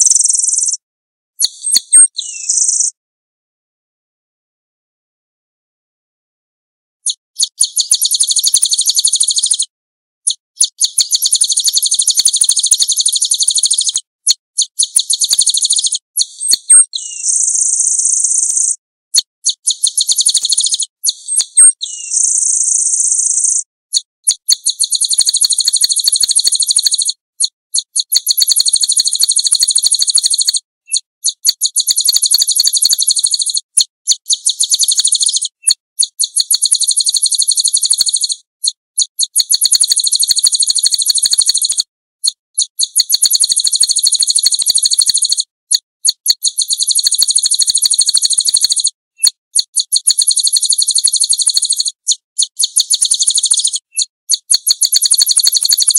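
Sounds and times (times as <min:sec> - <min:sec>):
songbird singing rapid high trills: 0:01.5 - 0:02.9, 0:15.2 - 0:18.7, 0:19.8 - 0:23.6.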